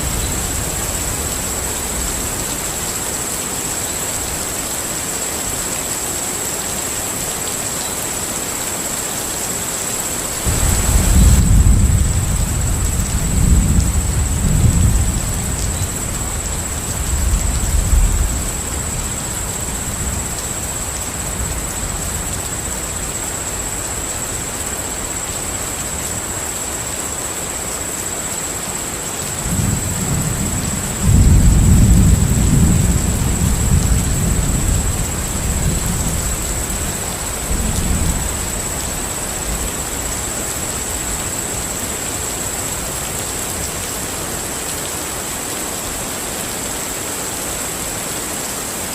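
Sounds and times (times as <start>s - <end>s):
steady rain: 0.0s - 48.9s
rolling thunder: 10.4s - 22.2s, 29.4s - 39.9s.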